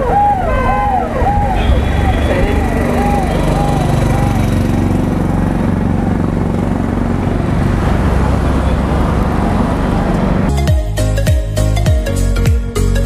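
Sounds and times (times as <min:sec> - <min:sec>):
motorcycle engine running: 0:01.6 - 0:11.4.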